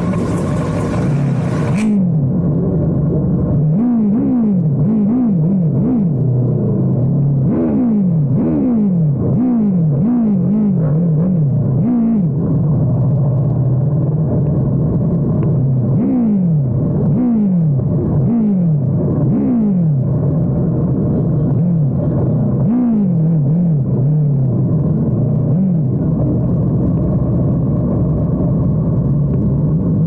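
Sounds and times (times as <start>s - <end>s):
motorcycle engine revving: 0.0s - 2.2s, 3.6s - 12.4s.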